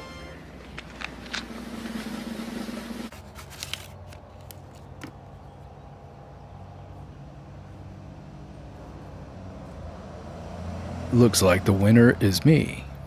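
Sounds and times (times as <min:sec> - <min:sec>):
low outdoor rumble: 0:00.0 - 0:13.0
paper cards clicking and rustling: 0:00.6 - 0:02.2, 0:03.1 - 0:05.2.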